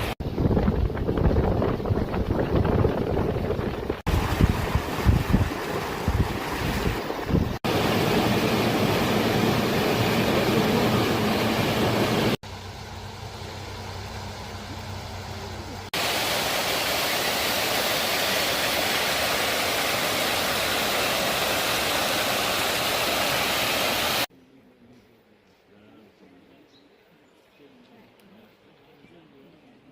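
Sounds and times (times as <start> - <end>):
flowing water rushing: 3.8 - 12.4, 13.8 - 24.3.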